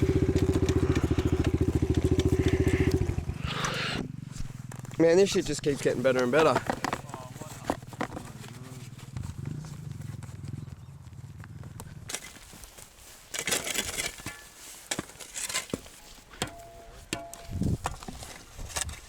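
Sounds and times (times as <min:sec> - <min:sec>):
dirt bike engine: 0:00.0 - 0:12.8.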